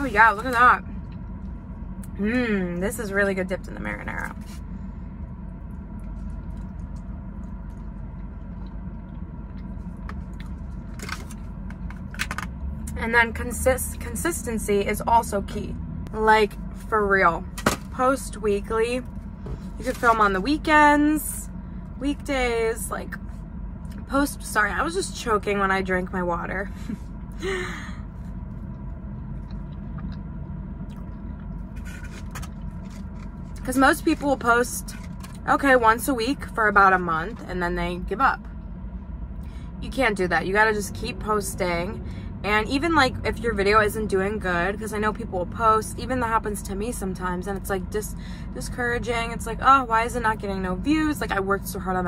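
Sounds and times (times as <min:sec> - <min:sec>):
low hum inside car: 0:00.0 - 0:52.0
chewing with mouth clicks: 0:29.3 - 0:31.6.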